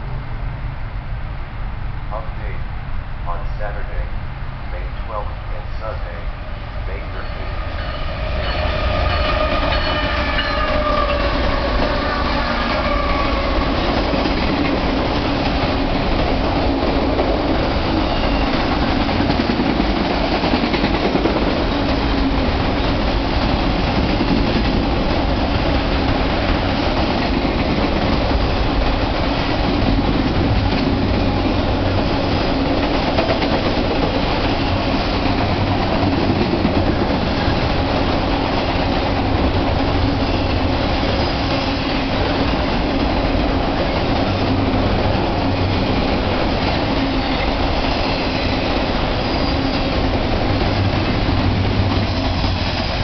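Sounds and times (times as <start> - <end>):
locomotive horn note: 7.2 - 13.5
freight cars rumbling and rattling: 13.5 - 53.0.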